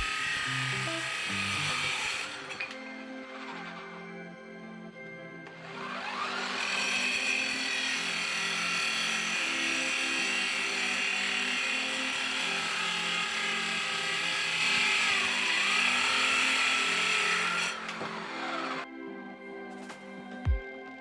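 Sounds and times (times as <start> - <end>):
electric drill spinning saw blade: 0.0 - 18.9.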